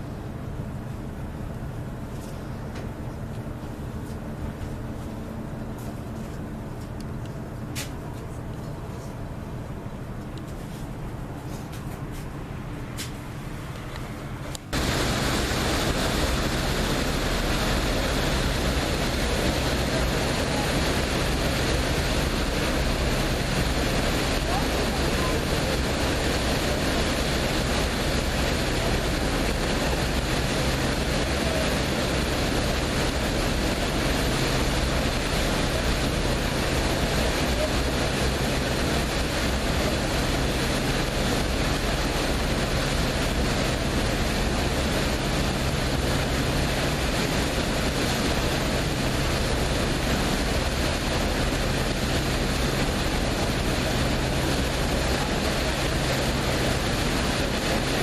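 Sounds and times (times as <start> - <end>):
boat engine hum: 0.0 - 58.0
wind noise: 13.9 - 58.0
rushing water: 14.6 - 58.0.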